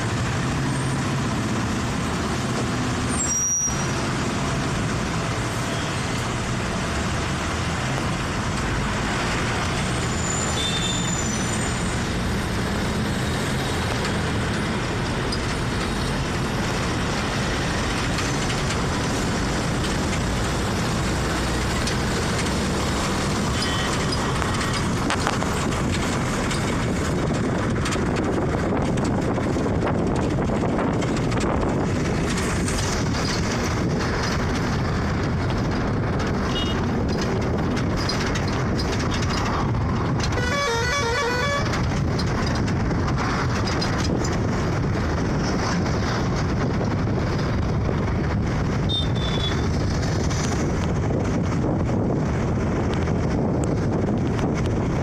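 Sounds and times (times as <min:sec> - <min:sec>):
vehicle road noise: 0:00.0 - 0:55.0.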